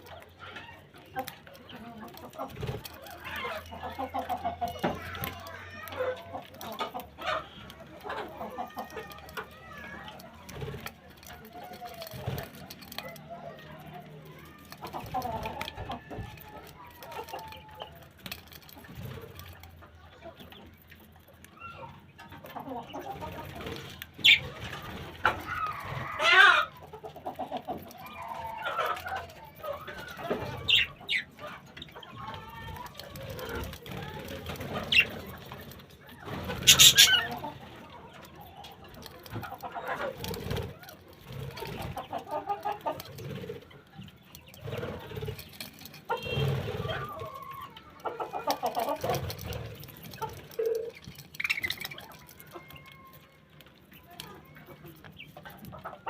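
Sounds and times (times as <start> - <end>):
chickens clucking: 0.0 - 56.0
small birds chirping: 0.0 - 56.0
high-pitched bird calls: 24.2 - 24.7, 27.7 - 33.8, 34.5 - 40.0, 43.8 - 56.0
chicken squawk: 25.2 - 26.8, 36.4 - 37.6.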